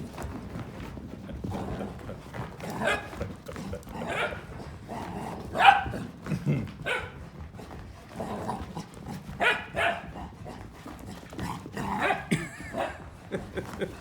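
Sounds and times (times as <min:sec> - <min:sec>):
dogs barking: 0:02.6 - 0:06.1, 0:06.8 - 0:07.3, 0:08.5 - 0:10.6, 0:11.4 - 0:13.2.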